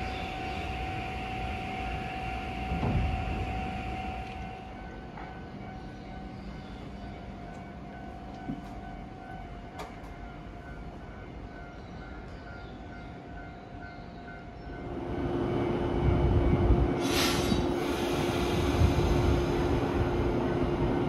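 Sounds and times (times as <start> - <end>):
electric train rumble and hum: 0.0 - 21.0
short hiss: 17.0 - 18.6.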